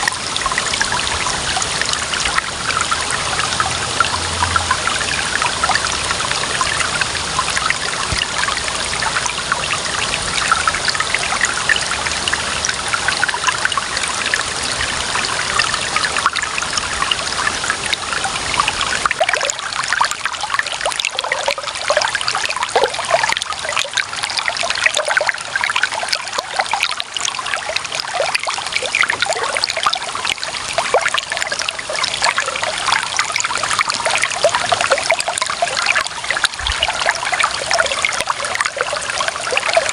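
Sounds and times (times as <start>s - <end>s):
small water splashes: 0.0s - 39.9s
water trickling and gurgling: 0.0s - 39.9s.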